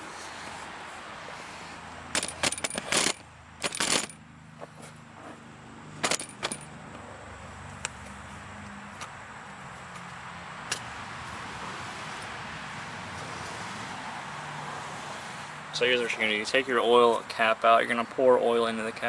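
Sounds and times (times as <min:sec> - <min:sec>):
small hard parts clicking and clattering: 0:02.1 - 0:04.2, 0:06.0 - 0:06.7.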